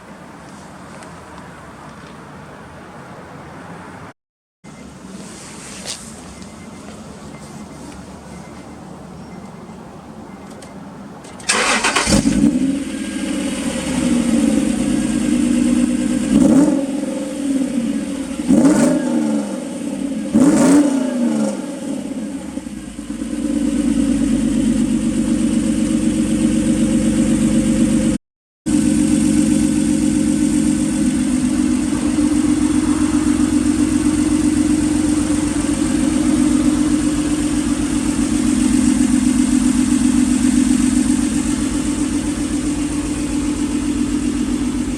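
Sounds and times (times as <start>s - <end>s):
car engine revving and idling: 11.5s - 44.9s.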